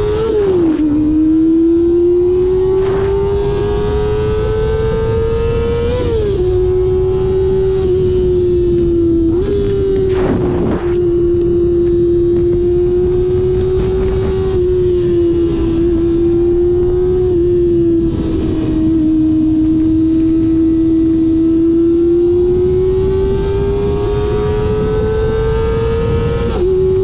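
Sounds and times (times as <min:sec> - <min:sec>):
motorcycle engine at high revs: 0:00.0 - 0:27.0
wind rumble on microphone: 0:00.0 - 0:27.0.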